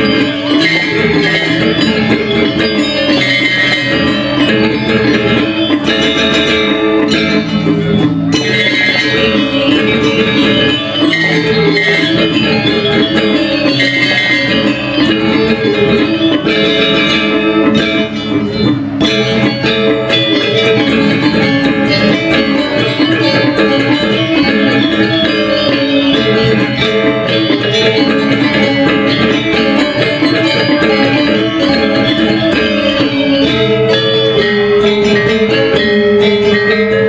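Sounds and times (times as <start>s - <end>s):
gamelan ensemble playing: 0.0s - 37.0s.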